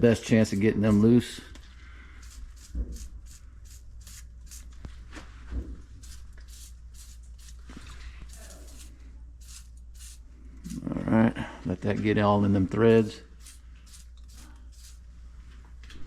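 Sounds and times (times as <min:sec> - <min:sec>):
aerosol spray hissing bursts: 0:06.0 - 0:07.6, 0:08.7 - 0:10.8, 0:13.4 - 0:15.0.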